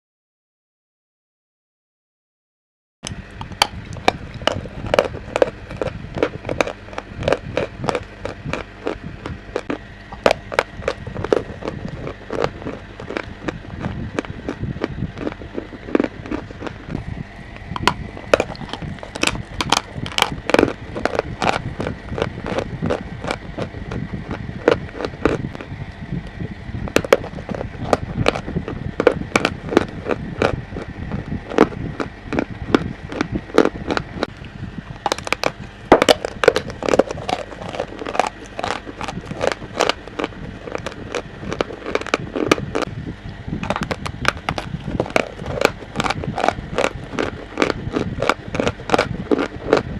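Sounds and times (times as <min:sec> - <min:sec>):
chalk being crunched: 0:03.4 - 0:17.0, 0:35.0 - 0:42.9, 0:43.6 - 0:49.8.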